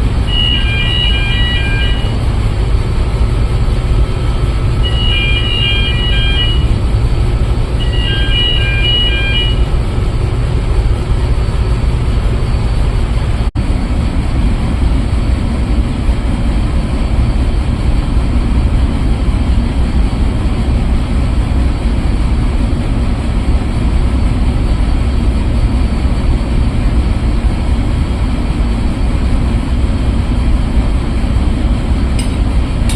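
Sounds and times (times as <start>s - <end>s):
low rumble of ship machinery: 0.0s - 32.9s
pulsing electronic beep: 0.3s - 2.2s, 4.8s - 6.7s, 7.8s - 9.7s.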